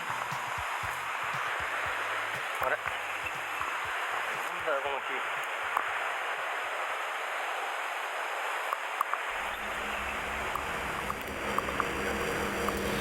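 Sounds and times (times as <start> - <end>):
stream water rushing: 0.0 - 13.0
faint clicks: 8.7 - 13.0.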